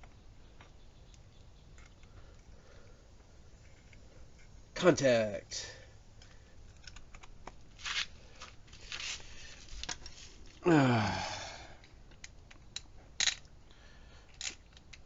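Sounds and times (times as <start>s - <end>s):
short human vocal sound: 10.6s - 11.8s.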